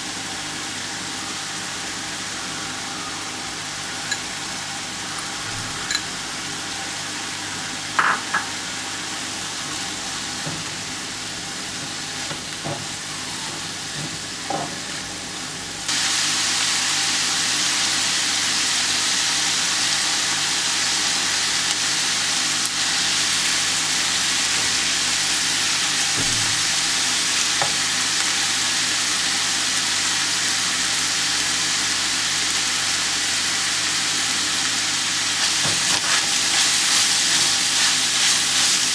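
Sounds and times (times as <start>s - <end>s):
food sizzling in a pan: 0.0s - 38.9s.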